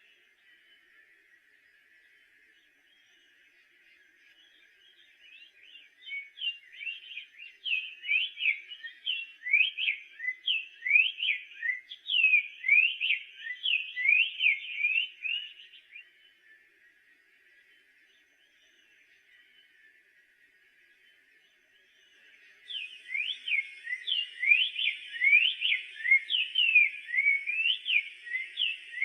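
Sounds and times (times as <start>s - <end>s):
bird singing whistled notes: 0.0s - 29.0s.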